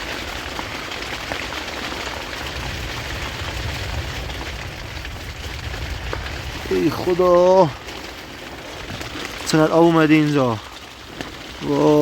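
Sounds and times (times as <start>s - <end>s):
heavy rain falling: 0.0s - 12.0s
low rumble: 2.4s - 8.2s.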